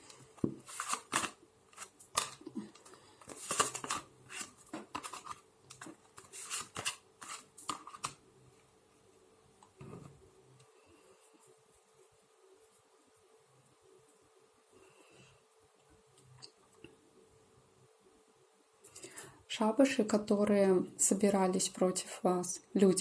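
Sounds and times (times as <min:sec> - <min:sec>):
cards being shuffled: 0:00.0 - 0:08.2.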